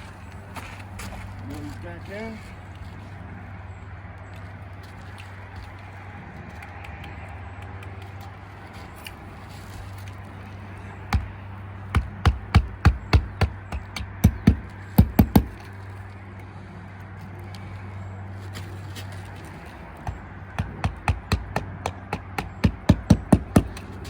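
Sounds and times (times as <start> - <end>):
hammer striking nails: 11.1 - 15.6, 20.0 - 24.0.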